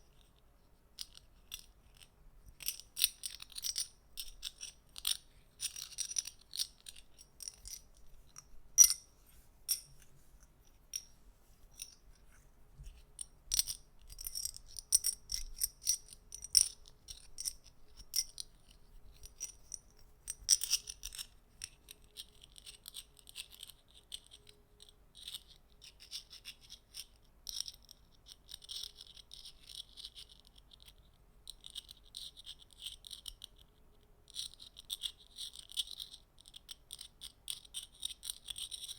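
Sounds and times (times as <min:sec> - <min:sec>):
small metal objects clicking: 0:01.0 - 0:09.1, 0:13.2 - 0:33.6.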